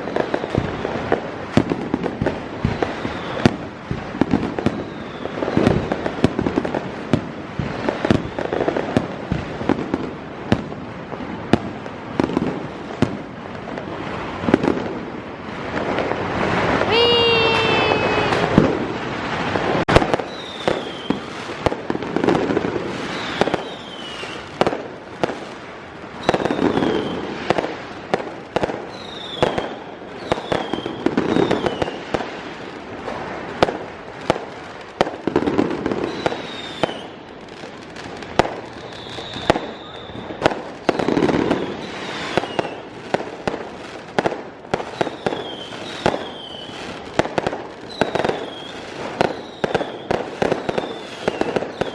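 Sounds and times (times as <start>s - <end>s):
firework whistles: 0.0s - 9.6s, 16.4s - 24.6s, 26.1s - 27.8s, 28.8s - 32.6s, 35.7s - 44.0s, 44.7s - 47.2s, 47.8s - 51.9s
fireworks bangs and crackles: 0.0s - 51.9s.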